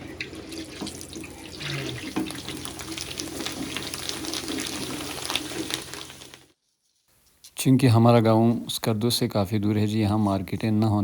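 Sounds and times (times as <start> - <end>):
cooking oil sizzling and popping: 0.0 - 6.6.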